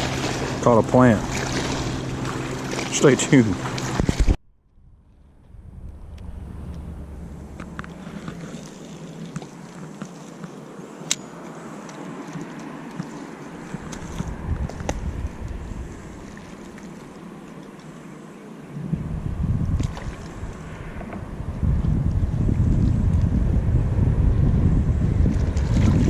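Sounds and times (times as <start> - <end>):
water: 0.0 - 26.0
wind on microphone: 3.6 - 8.8, 13.6 - 16.7, 18.7 - 26.0.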